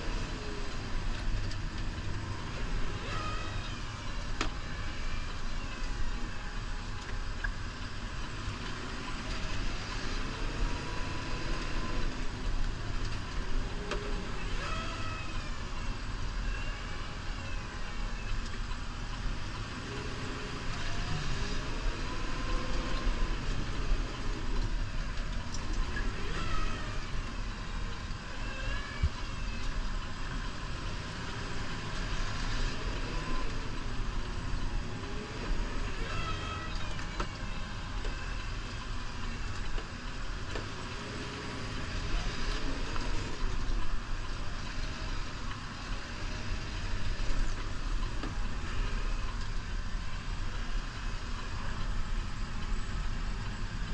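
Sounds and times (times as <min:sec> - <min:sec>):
tractor diesel engine revving: 0:29.6 - 0:53.9.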